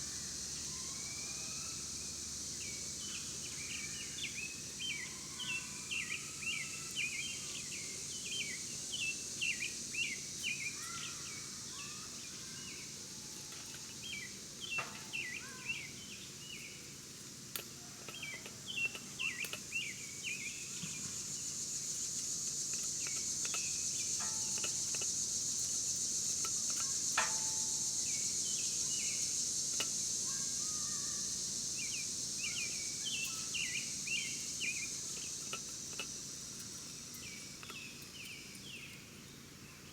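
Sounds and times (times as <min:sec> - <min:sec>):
high insect drone: 0:00.0 - 0:39.9
small birds chirping: 0:00.4 - 0:39.9.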